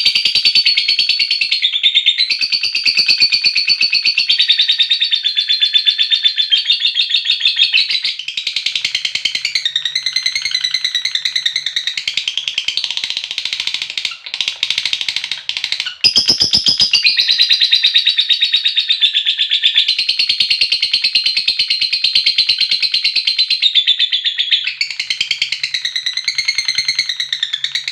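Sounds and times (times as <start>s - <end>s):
lovebird buzzing chatter: 8.8s - 17.2s.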